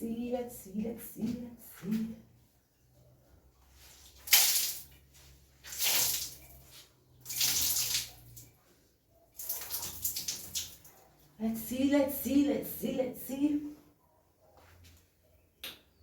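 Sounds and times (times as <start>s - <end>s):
water splashing in a bathtub: 3.6s - 11.4s.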